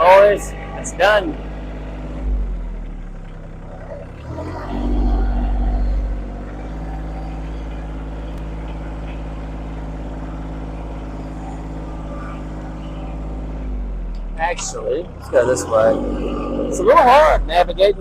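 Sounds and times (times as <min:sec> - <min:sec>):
machine engine revving: 0:01.9 - 0:18.0.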